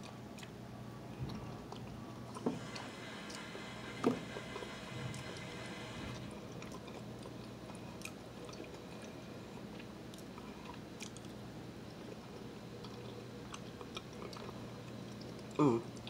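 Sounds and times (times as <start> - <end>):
person chewing: 6.5 - 16.0.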